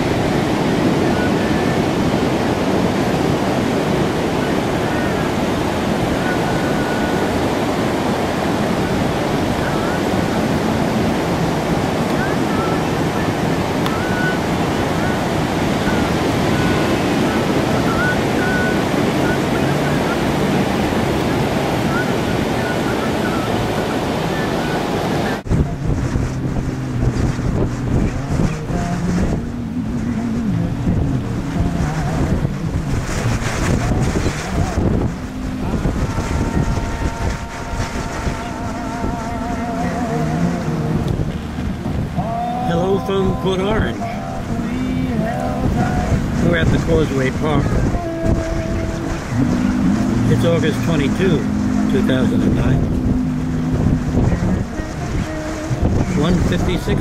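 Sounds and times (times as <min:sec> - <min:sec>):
ocean waves breaking: 0:00.0 - 0:57.0
surf rushing: 0:00.0 - 0:57.0
wind buffeting microphone: 0:00.0 - 0:57.0
low steady hum: 0:25.2 - 0:57.0.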